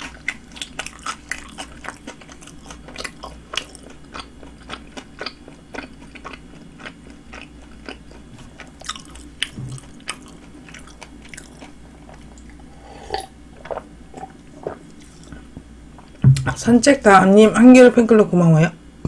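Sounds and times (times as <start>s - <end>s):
person chewing: 0.0s - 16.2s
swallowing sounds: 8.3s - 16.2s.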